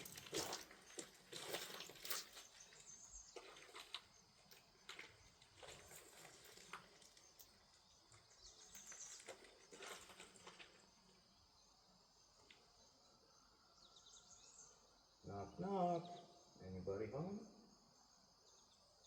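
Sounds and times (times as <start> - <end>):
small clicks and rustles: 0.0 - 11.1.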